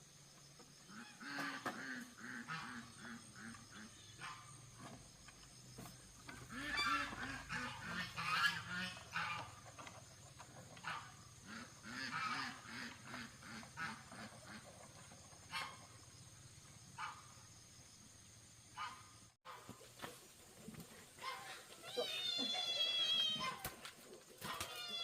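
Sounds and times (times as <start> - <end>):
geese honking: 6.5 - 9.6, 10.8 - 14.7.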